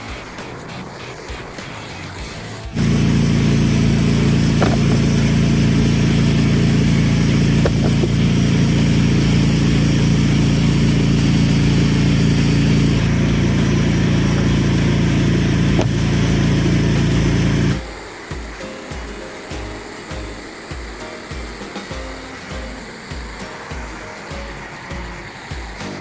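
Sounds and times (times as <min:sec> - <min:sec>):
small gasoline engine running: 0:00.0 - 0:26.0.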